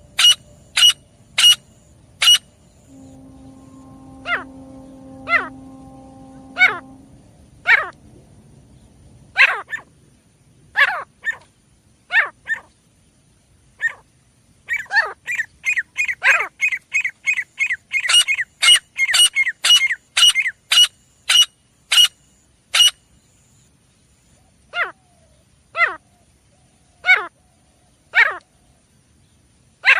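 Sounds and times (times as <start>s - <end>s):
francolin calling: 0.0s - 9.6s.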